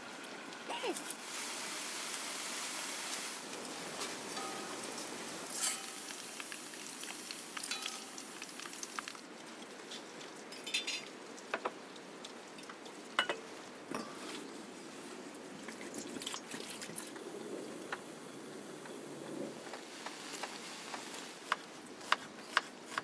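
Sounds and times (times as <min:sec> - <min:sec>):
food sizzling in a pan: 0:00.0 - 0:09.3, 0:19.7 - 0:21.5
utensil clinking against pan: 0:04.3 - 0:06.2, 0:07.6 - 0:08.3.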